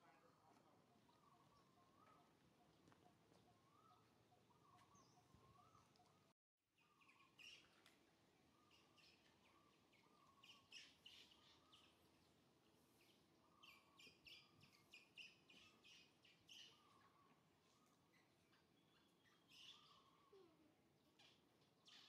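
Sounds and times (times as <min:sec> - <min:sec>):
faint bird chirps: 0:00.0 - 0:07.9, 0:08.5 - 0:22.0.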